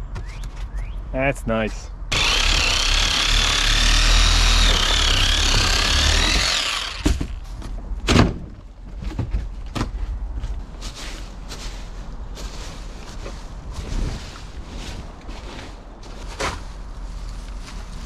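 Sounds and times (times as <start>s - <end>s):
power tool whining: 2.1s - 7.4s
knocks and clunks: 4.7s - 10.0s.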